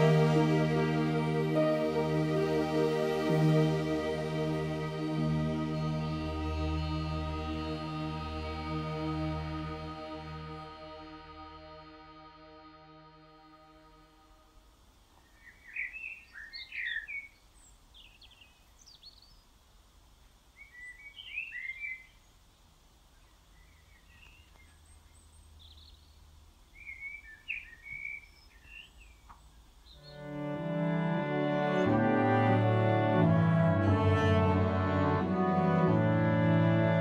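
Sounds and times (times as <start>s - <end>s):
bird chirping: 15.1s - 19.6s, 20.4s - 30.5s
faint low outdoor rumble: 17.2s - 30.6s.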